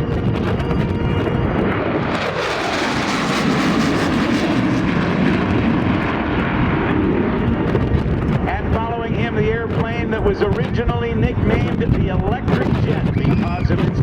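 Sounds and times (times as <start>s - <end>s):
jet whine dropping in pitch: 0.0s - 10.6s
loud jet noise: 0.0s - 14.0s.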